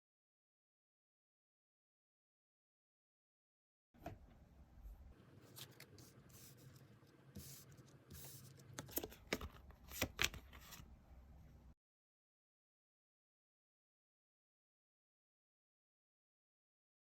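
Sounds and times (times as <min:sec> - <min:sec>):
cards rustling and sliding: 0:05.4 - 0:10.9.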